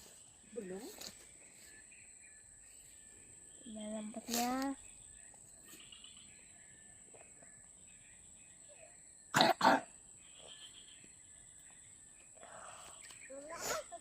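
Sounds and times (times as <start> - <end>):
person coughing: 9.4 - 9.9.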